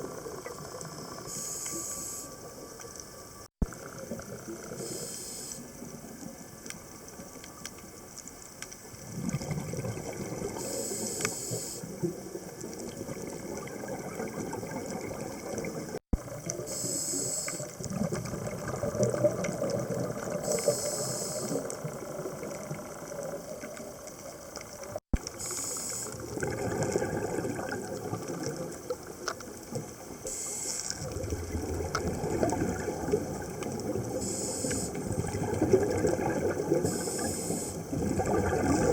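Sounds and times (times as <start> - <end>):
regulator breathing hiss: 1.3 - 2.4, 4.8 - 5.8, 10.6 - 11.9, 16.6 - 17.8, 20.4 - 21.8, 25.3 - 26.3, 30.2 - 31.0, 34.2 - 35.1, 36.8 - 37.9
bubbling exhaled air: 9.0 - 12.2, 12.8 - 23.7, 24.8 - 29.1, 30.2 - 38.9.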